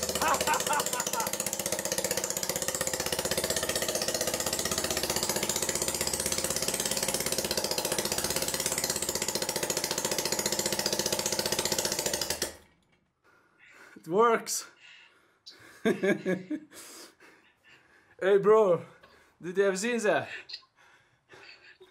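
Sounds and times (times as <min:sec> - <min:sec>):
single-cylinder engine running: 0:00.0 - 0:12.8.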